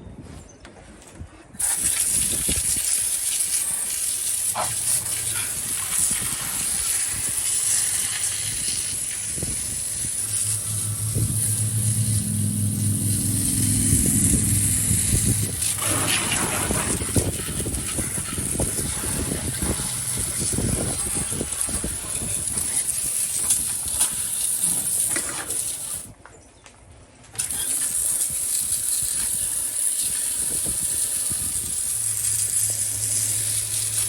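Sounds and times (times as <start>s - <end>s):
water spraying from hose nozzle: 1.6s - 26.1s, 27.4s - 34.0s
low hum: 4.6s - 22.7s.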